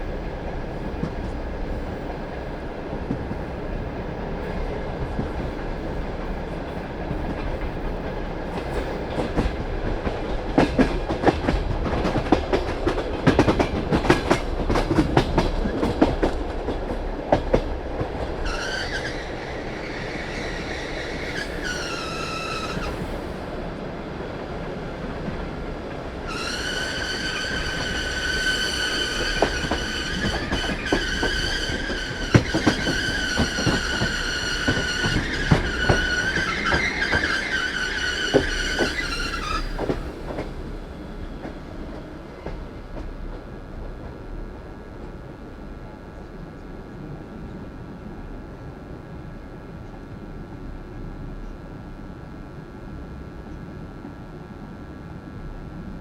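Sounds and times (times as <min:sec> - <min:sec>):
train wheels clicking over rail joints: 0:07.0 - 0:23.3, 0:26.3 - 0:44.2
high-pitched wheel squeal: 0:18.4 - 0:23.2, 0:26.3 - 0:40.0.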